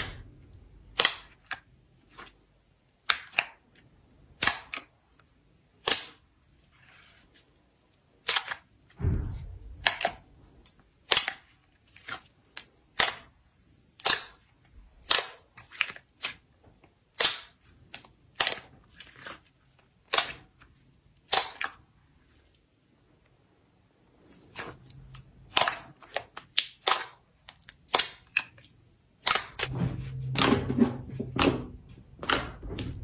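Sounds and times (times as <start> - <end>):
low thud: 9.0 - 9.9.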